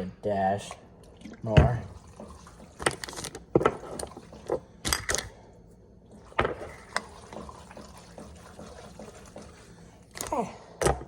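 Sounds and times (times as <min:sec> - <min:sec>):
liquid sloshing: 0:01.0 - 0:04.7, 0:06.1 - 0:10.0.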